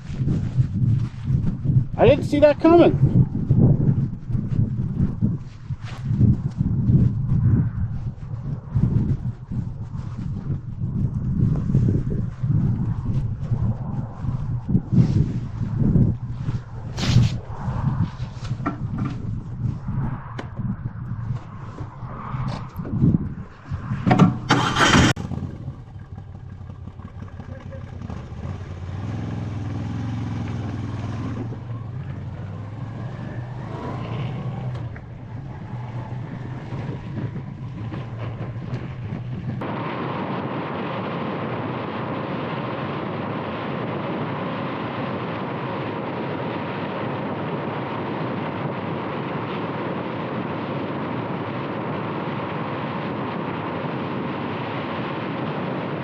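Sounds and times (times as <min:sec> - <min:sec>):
wind and road noise: 0:00.0 - 0:56.0
motorcycle engine pulling away: 0:23.9 - 0:39.6
loud clatter: 0:24.0 - 0:28.6.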